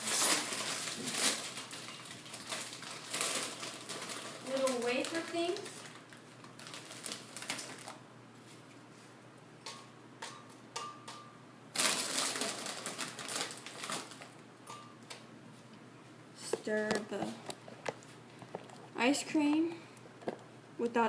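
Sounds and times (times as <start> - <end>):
crunching of dry wafer snacks: 0.3 - 8.0.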